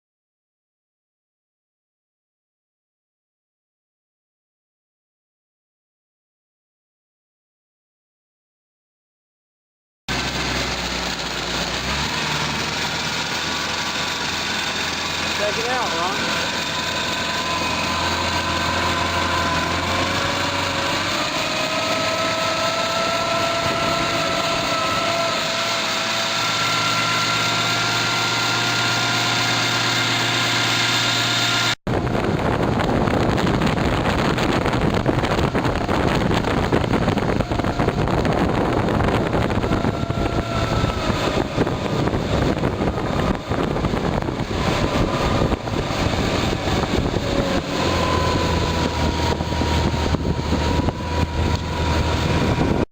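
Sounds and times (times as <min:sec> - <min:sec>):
water noise: 0:10.1 - 0:52.8
outboard motor running: 0:10.1 - 0:52.9
wind on microphone: 0:16.2 - 0:30.3, 0:31.5 - 0:52.9.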